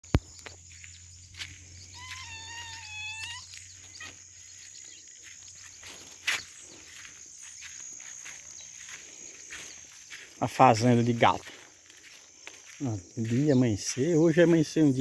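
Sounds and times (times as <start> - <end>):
insect drone: 0.0 - 15.0
animal call: 1.8 - 4.2.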